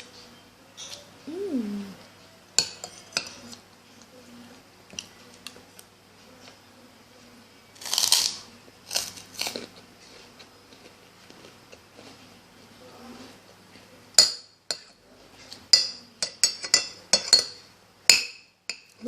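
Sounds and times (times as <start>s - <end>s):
crunchy food chewing: 7.8s - 12.3s.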